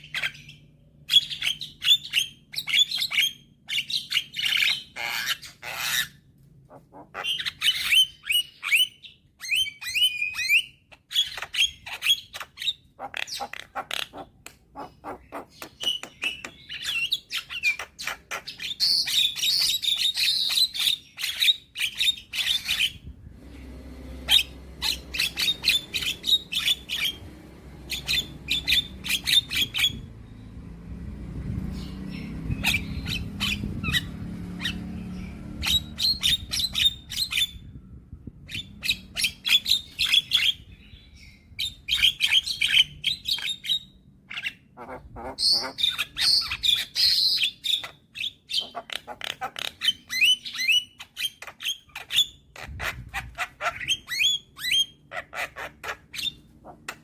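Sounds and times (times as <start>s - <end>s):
bird song with clicks and whistles: 0.0s - 6.1s, 7.2s - 14.7s, 15.3s - 23.0s, 38.5s - 44.6s, 45.4s - 55.0s.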